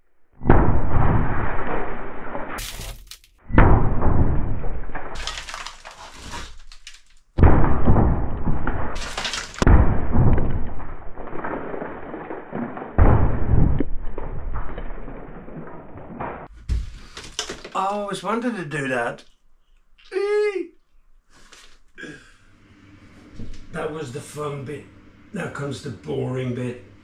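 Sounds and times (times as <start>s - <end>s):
debris crumbling and falling: 0.5s - 18.2s
plasterboard cracking and breaking: 2.6s - 3.4s, 5.1s - 18.1s.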